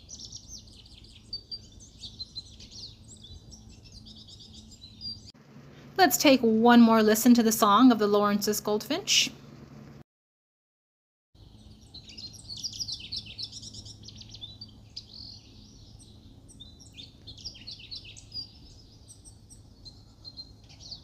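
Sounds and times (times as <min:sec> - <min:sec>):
goldfinch twittering song: 0:00.0 - 0:05.4, 0:11.4 - 0:21.0.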